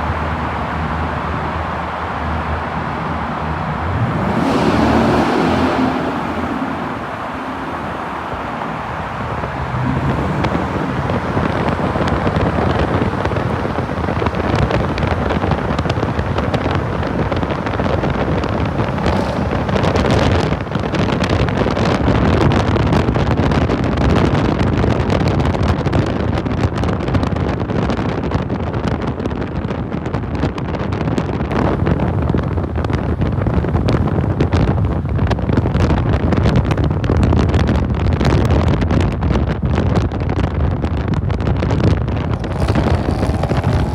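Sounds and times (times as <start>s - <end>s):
car engine rumble: 0.0s - 43.9s
wind buffeting microphone: 0.0s - 43.9s.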